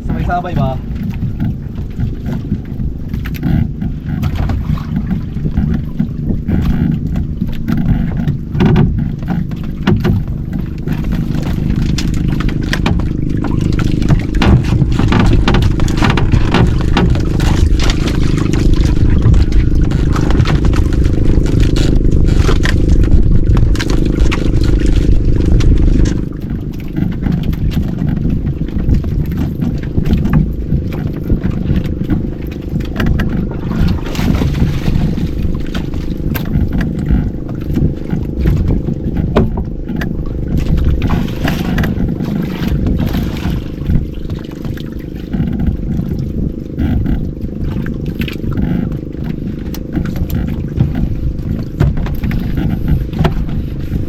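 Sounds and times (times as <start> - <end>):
scrapes and knocks: 0.0 - 46.2, 48.3 - 54.0
boat engine running: 0.0 - 54.0.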